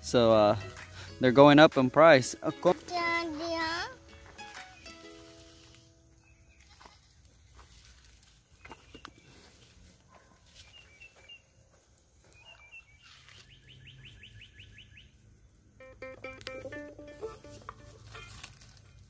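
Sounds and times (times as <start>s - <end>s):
faint birds chirping: 4.7s - 16.8s.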